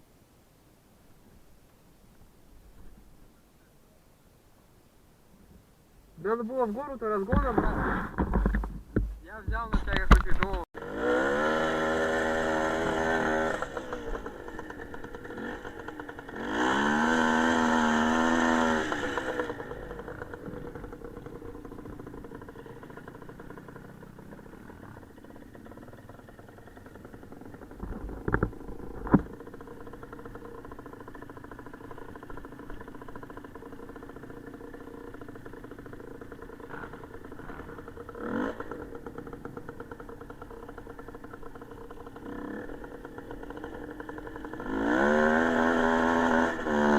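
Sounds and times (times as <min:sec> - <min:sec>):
small motorcycle engine revving: 0:06.2 - 0:46.9
sharp knocks: 0:07.3 - 0:10.6.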